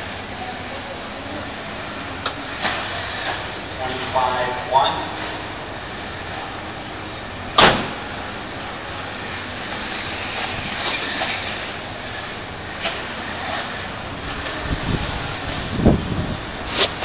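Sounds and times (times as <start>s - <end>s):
high-pitched whine of rc motors: 0.0s - 17.0s
loud sharp knock: 7.6s - 7.9s.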